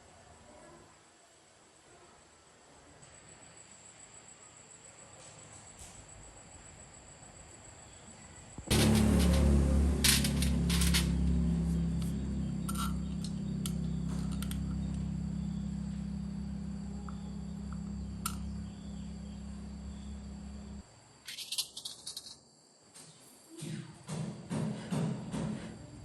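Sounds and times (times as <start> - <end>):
low mechanical hum: 8.3 - 21.1.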